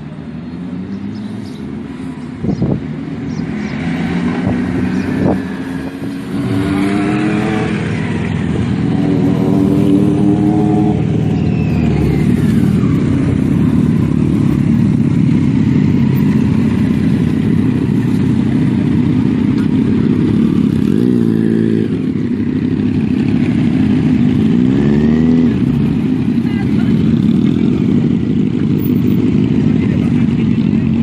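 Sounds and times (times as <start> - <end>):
motorcycle engine running: 0.0 - 31.0
wind noise: 2.4 - 3.0.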